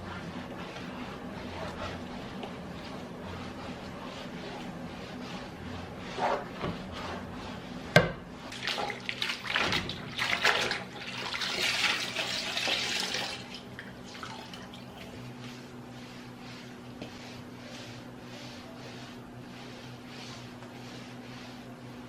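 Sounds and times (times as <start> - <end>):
splashing and handling: 8.5 - 15.2.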